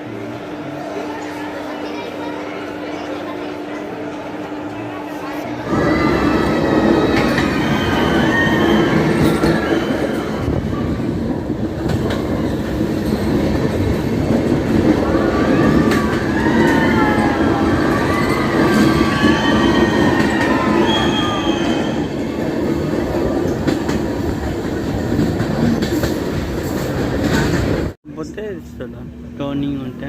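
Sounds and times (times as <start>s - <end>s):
train rumbling on rails: 0.0s - 30.0s
high wavering wheel squeal: 5.6s - 10.5s, 15.1s - 22.4s.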